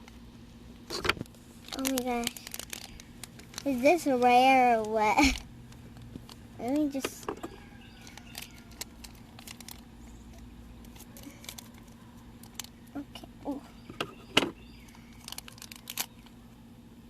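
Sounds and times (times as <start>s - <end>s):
plastic bag crinkling: 0.9s - 12.9s, 14.8s - 16.4s.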